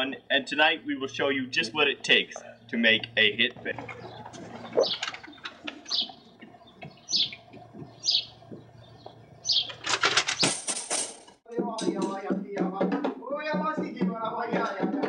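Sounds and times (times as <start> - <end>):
bird chirping: 0.0 - 10.6
rapid rustling clicks: 3.7 - 11.2.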